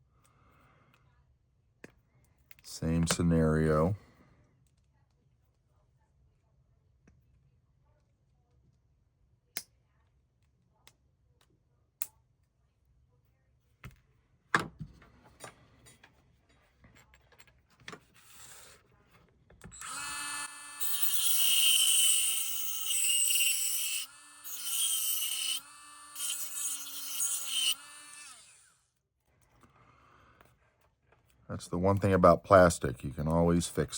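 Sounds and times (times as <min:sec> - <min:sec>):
rotary tool motor running: 0:19.7 - 0:28.8.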